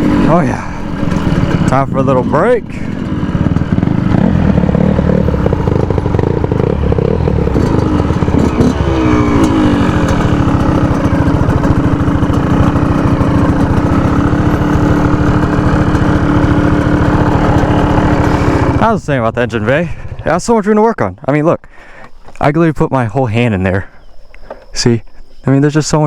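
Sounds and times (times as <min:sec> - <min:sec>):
dirt bike engine idling: 0:00.0 - 0:22.5.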